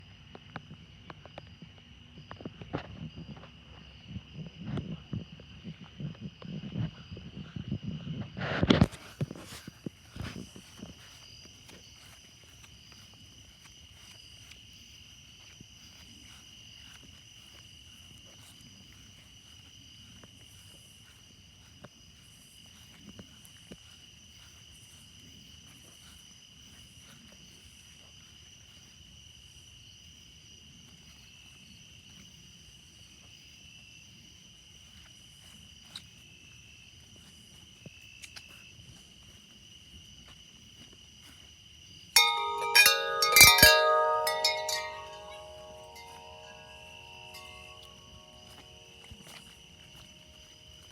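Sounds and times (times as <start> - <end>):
night insects chorus: 0.0 - 50.9
wind chime ringing: 42.2 - 50.4.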